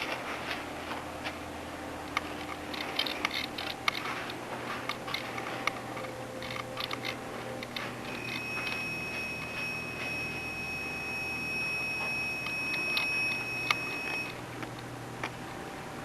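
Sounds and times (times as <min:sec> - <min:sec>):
steady high-pitched tone: 0:05.7 - 0:14.4.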